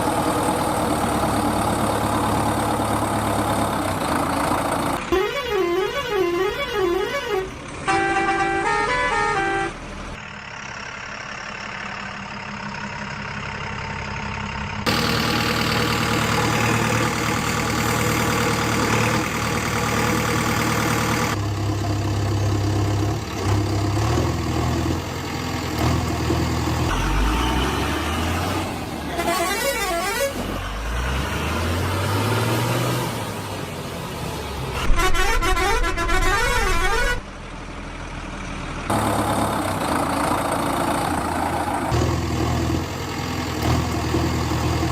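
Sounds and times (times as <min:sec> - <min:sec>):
warbling horn tones: 0:05.1 - 0:09.8, 0:29.1 - 0:30.5, 0:34.8 - 0:37.2
vehicle engine revving: 0:22.9 - 0:33.5.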